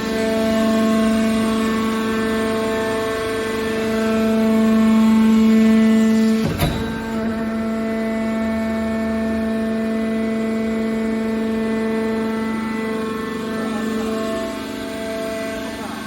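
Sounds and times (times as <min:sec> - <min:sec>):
hydraulic machine hum: 0:00.0 - 0:16.0
sharp metal clank: 0:06.4 - 0:08.2.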